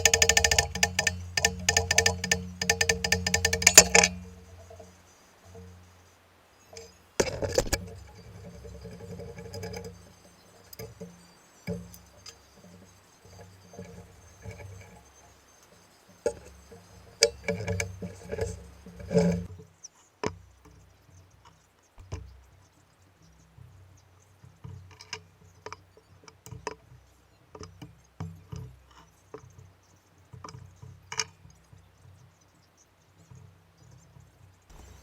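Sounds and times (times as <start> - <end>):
metal parts and tools clicking: 0.0 - 5.8, 6.7 - 19.5.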